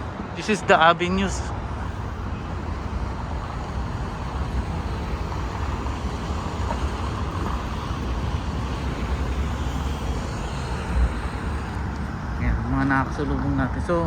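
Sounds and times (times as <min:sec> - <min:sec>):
road traffic rumble: 0:00.0 - 0:14.0
wind buffeting microphone: 0:00.0 - 0:14.0.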